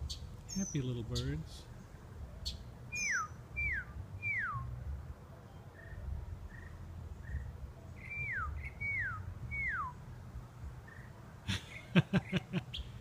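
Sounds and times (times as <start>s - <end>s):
bird whistling descending notes: 2.9s - 4.7s, 8.0s - 10.0s.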